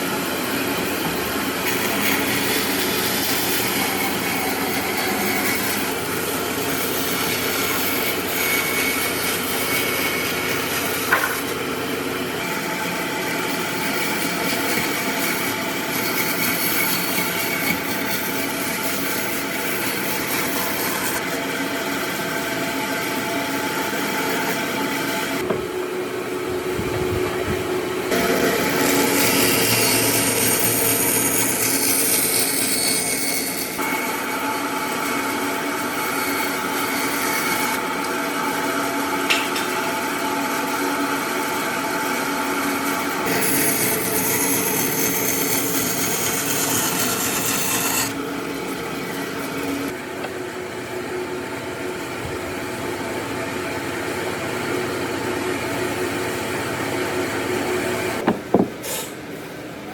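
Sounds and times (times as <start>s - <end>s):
power tool grinding wood: 0.0s - 21.3s, 28.1s - 50.0s.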